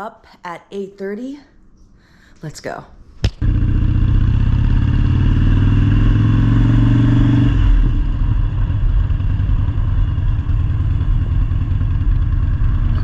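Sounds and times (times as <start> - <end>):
motorcycle engine running: 3.4 - 13.0.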